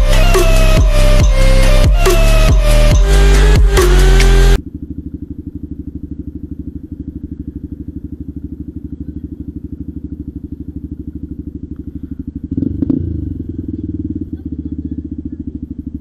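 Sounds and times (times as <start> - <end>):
loud electronic music: 0.0 - 4.6
motorcycle engine idling: 0.0 - 16.0.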